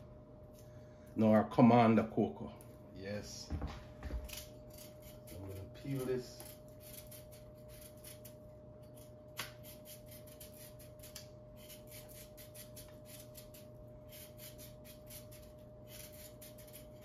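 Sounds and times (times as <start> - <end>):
knife scraping root: 4.2 - 17.0.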